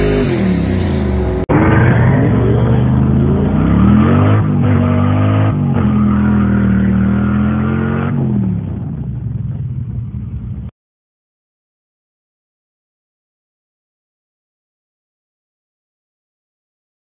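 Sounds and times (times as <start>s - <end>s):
car engine accelerating: 0.0s - 10.1s.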